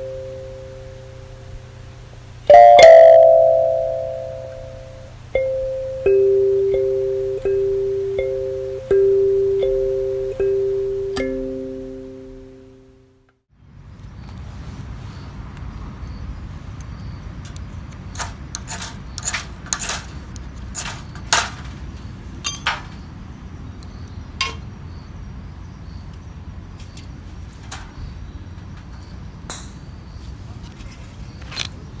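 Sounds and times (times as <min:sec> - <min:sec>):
sharp clicks and knocks: 0:24.4 - 0:24.7.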